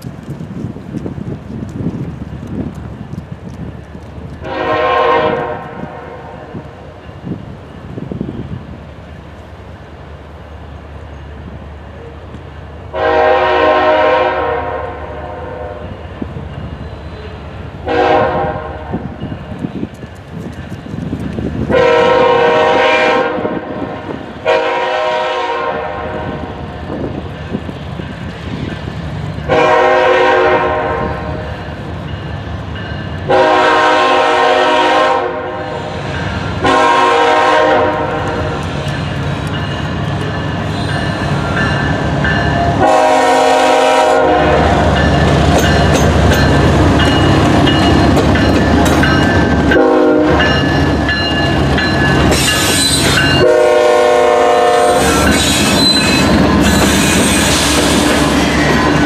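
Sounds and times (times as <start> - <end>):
train rumble: 0.0 - 59.0
locomotive horn blasts: 4.4 - 6.6, 12.9 - 15.9, 17.2 - 19.0, 21.7 - 26.5, 29.5 - 31.5, 33.3 - 35.9, 36.6 - 38.6, 42.6 - 44.9, 49.7 - 50.7, 53.1 - 56.4.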